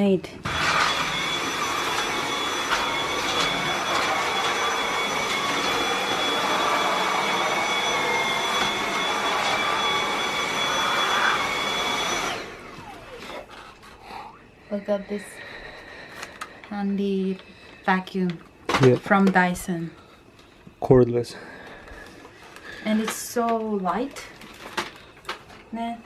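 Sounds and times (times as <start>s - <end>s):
handheld vacuum whining: 0.0s - 14.3s.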